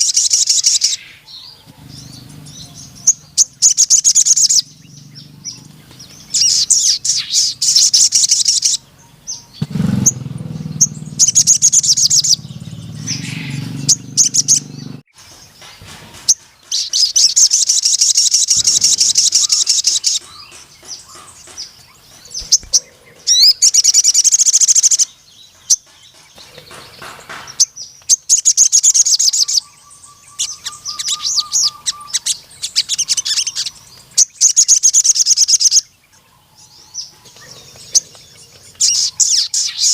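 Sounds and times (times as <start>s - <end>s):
bird trilling: 0.0s - 15.1s, 16.2s - 35.9s, 36.6s - 39.9s
low rumble: 9.5s - 15.1s.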